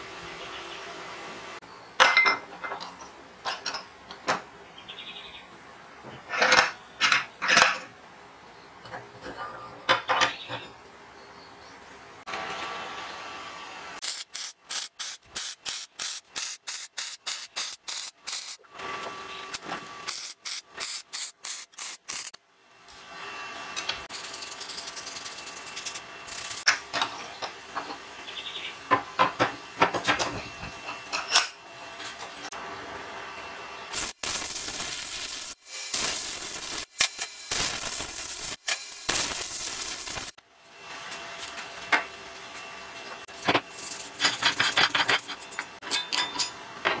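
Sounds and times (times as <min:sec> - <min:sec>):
welding arc crackling: 0:14.0 - 0:18.7, 0:19.5 - 0:22.4, 0:24.1 - 0:26.7, 0:33.9 - 0:40.4, 0:43.2 - 0:45.7
welding pops and cracks: 0:33.9 - 0:40.4.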